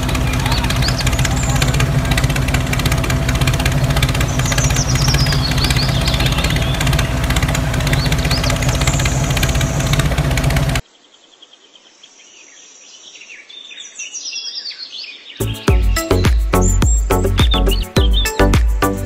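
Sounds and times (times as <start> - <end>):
tractor engine running: 0.0 - 10.8, 15.4 - 19.0
birds chirping: 0.0 - 19.0.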